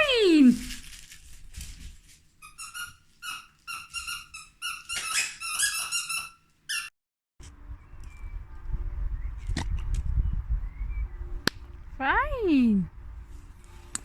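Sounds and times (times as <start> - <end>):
squeaky dog toy squeaking: 2.4 - 6.9.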